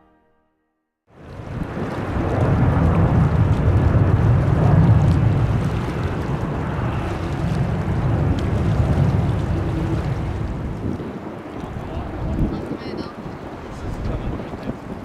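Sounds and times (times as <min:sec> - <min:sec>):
jet engines rumbling: 0:01.1 - 0:15.0
wind buffeting microphone: 0:01.1 - 0:15.0.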